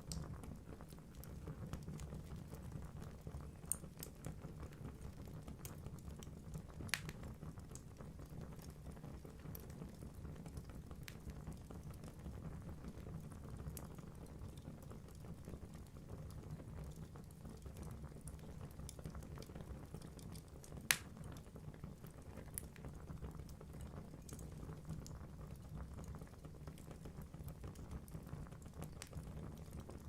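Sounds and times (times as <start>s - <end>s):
fire crackling in fireplace: 0.0s - 30.0s
loud sharp pop of fire: 20.9s - 21.1s.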